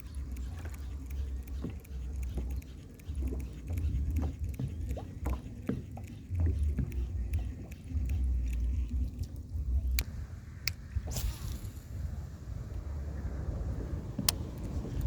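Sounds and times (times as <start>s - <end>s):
wind buffeting microphone: 8.8s - 15.0s.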